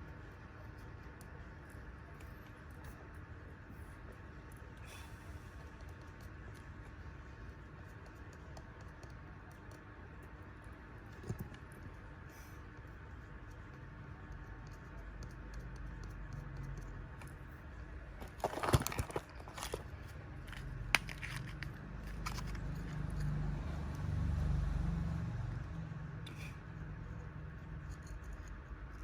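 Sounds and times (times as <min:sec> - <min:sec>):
hand tools clicking and scraping: 0:18.2 - 0:23.3.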